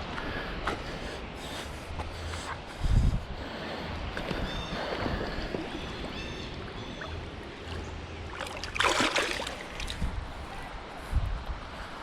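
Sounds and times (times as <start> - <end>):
water lapping at river edge: 0.0 - 12.0
water splash: 7.0 - 10.1.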